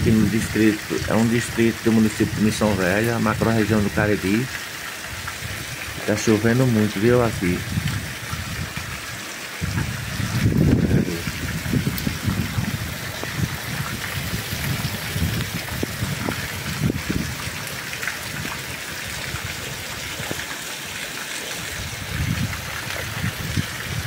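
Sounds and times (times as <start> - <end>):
heavy rain: 0.0 - 24.0
low rumbles: 9.6 - 19.7.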